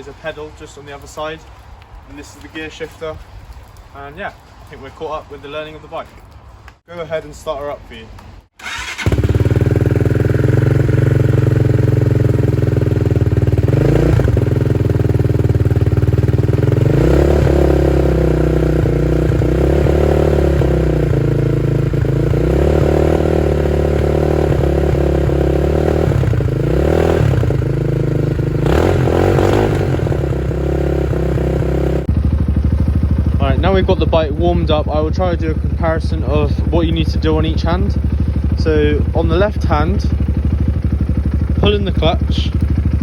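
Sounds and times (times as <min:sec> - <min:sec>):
dirt bike engine idling: 0:08.6 - 0:43.0.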